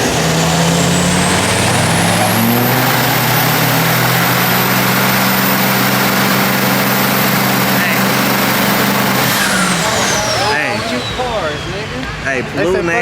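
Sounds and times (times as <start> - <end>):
car engine at high revs: 0.0 - 13.0
high whine: 0.0 - 13.0.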